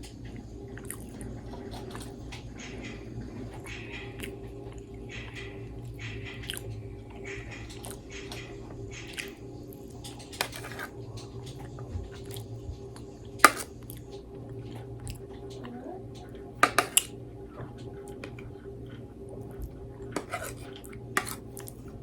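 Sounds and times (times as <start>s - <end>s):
chewing and biting food: 0.8s - 2.2s, 6.4s - 8.4s.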